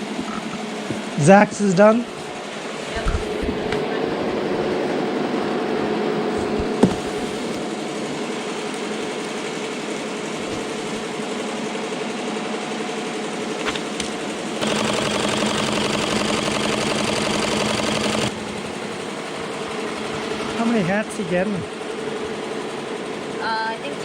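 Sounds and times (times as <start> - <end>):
embroidery machine stitching whir: 6.0 - 24.0.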